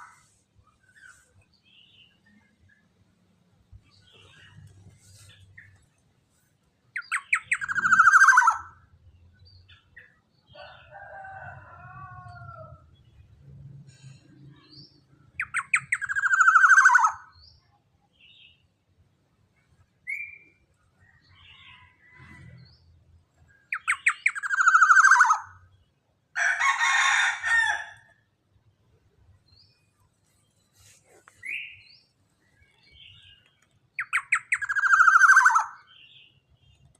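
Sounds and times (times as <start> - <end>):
bird chattering: 7.0 - 8.7, 15.4 - 17.2, 23.7 - 25.5, 34.0 - 35.8
harsh rasping bird call: 7.0 - 8.8
oriole calling: 7.0 - 8.8.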